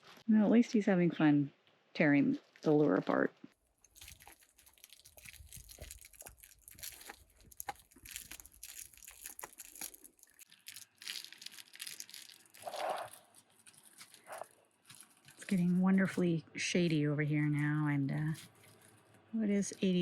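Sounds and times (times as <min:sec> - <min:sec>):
dog chewing and tearing toy: 0:03.6 - 0:15.6.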